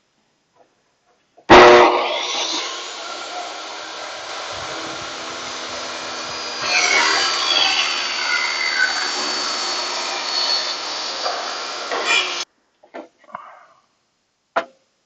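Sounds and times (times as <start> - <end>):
saw blade cutting wood: 1.5 - 12.4
table saw running: 1.5 - 12.4.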